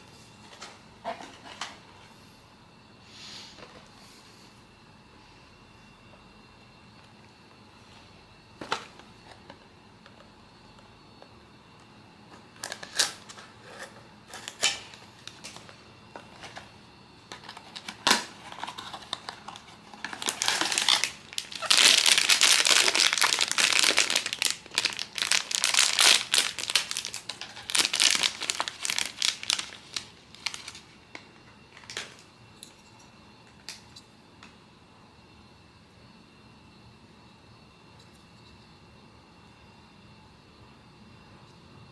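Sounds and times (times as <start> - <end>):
packaging crinkling: 17.3 - 32.3.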